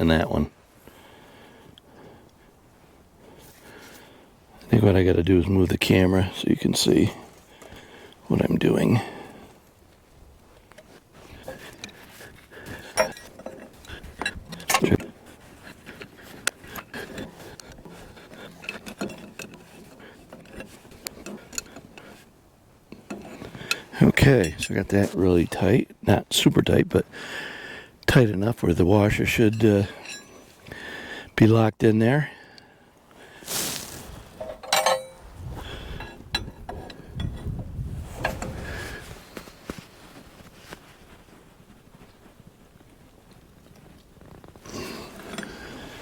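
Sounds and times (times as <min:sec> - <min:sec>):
metal tools clinking: 0:12.8 - 0:15.1, 0:16.7 - 0:22.1, 0:29.3 - 0:30.6, 0:34.4 - 0:35.4
low rumble of handling: 0:33.5 - 0:46.0.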